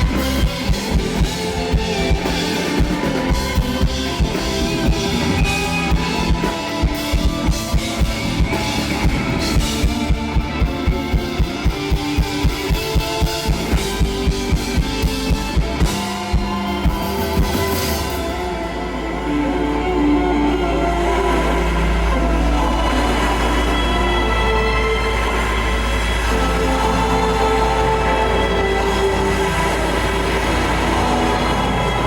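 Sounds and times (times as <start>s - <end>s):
drum kit beat: 0.0s - 18.6s
electric guitars: 0.0s - 32.0s
low bass drone: 0.0s - 32.0s.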